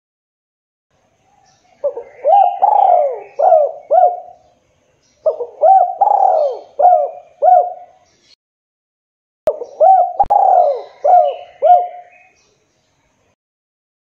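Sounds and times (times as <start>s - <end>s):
small birds chirping: 1.0s - 8.4s, 9.5s - 13.4s
dove cooing: 1.8s - 4.4s, 5.2s - 8.0s, 9.5s - 12.3s.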